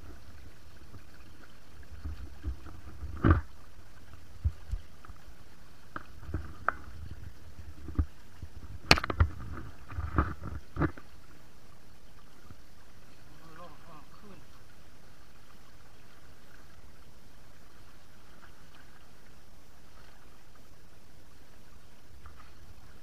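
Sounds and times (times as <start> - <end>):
knocks and splashes in water: 0.0 - 5.2, 5.8 - 11.4.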